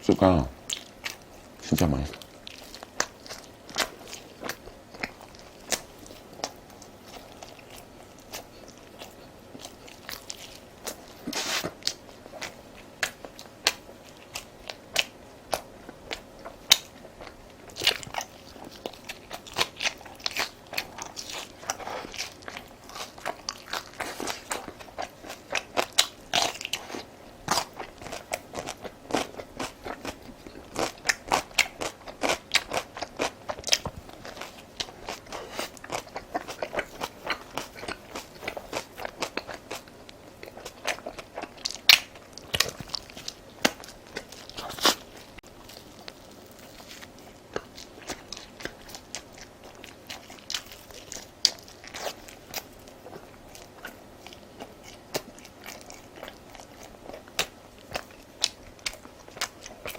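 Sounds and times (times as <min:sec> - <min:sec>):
chewing crunchy food: 0:00.0 - 0:59.9.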